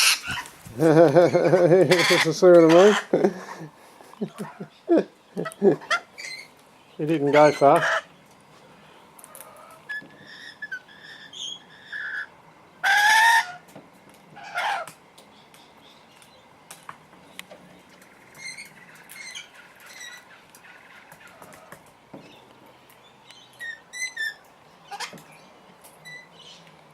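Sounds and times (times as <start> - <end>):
parrot squawks: 0.0 - 0.5, 1.9 - 3.1, 9.5 - 13.6.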